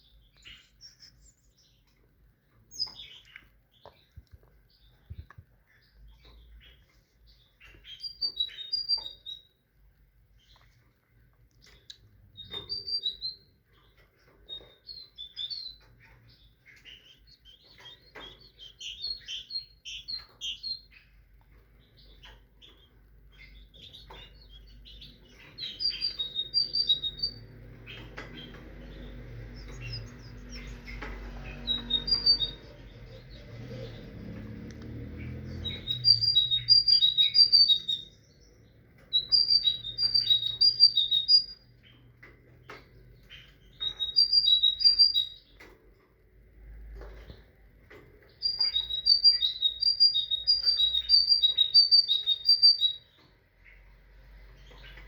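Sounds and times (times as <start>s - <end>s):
sharp bird calls: 11.6s - 34.2s, 35.1s - 45.7s, 48.3s - 55.0s.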